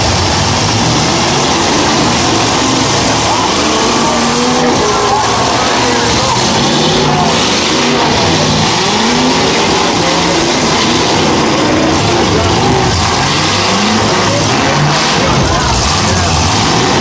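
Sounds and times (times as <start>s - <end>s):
car engines revving: 0.0s - 17.0s
dense wash of noise: 0.0s - 17.0s.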